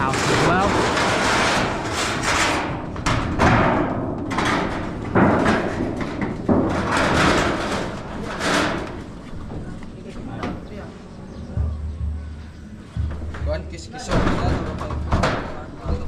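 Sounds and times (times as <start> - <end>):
knocks and thuds: 0.0 - 9.0, 11.6 - 16.0
sharp bangs: 0.0 - 9.0, 11.5 - 15.7
steady noisy clatter: 0.0 - 10.5.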